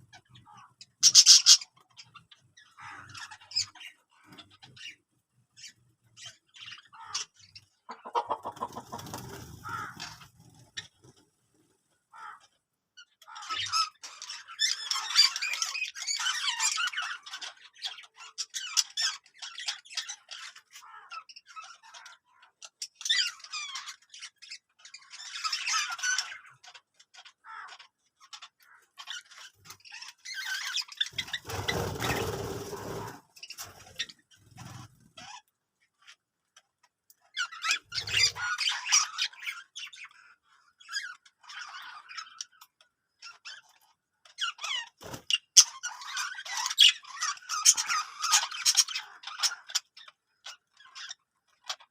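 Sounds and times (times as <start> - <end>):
budgerigar chirp: 0.0 - 10.7, 37.4 - 40.1
budgerigars chattering and squawking: 0.0 - 36.2, 37.2 - 51.9
budgerigar call: 6.9 - 10.2.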